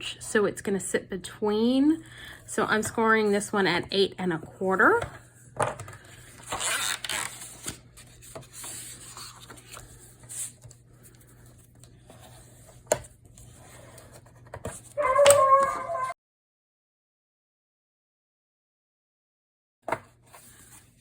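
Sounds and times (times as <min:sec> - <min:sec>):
paper rubbing and rustling: 0:06.3 - 0:16.1.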